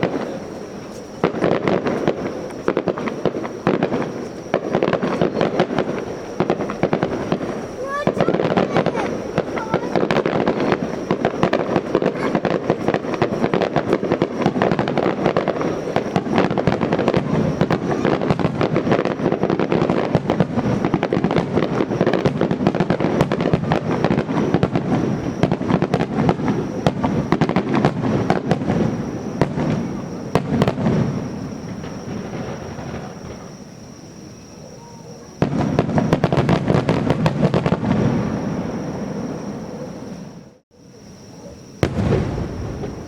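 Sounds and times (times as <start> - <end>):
big fireworks bangs: 0.0 - 43.0
fireworks bursts and crackling: 0.0 - 43.0.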